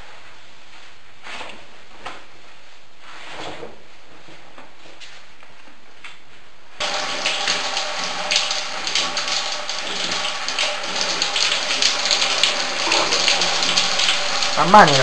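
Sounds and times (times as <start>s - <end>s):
shower water splashing on tiles: 6.8s - 15.0s.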